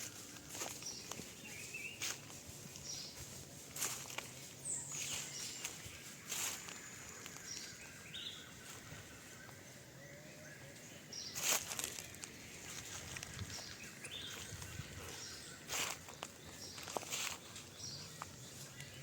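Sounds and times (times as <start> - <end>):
rustling: 0.0 - 7.8, 11.4 - 19.0.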